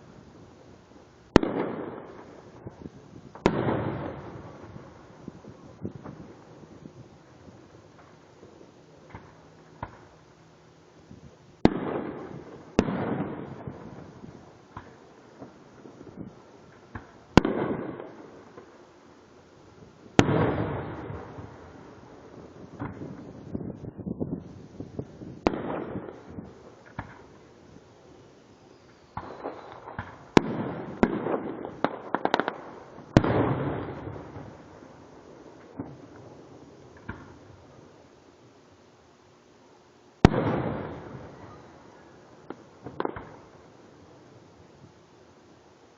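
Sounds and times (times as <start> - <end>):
fireworks booming: 1.3 - 10.2, 11.1 - 18.8, 19.7 - 28.3, 28.9 - 38.0, 40.2 - 45.0.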